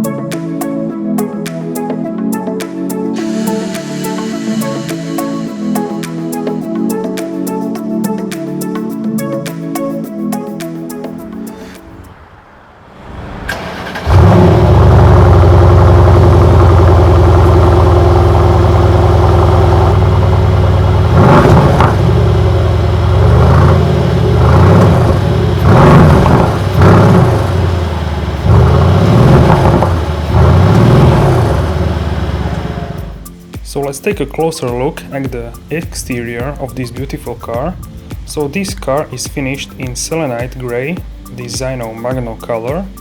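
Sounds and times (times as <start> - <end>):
engine throttle blips: 3.1 - 8.2, 11.2 - 33.4, 35.2 - 43.0
engine idling: 11.5 - 33.4
engine starting: 11.6 - 15.6.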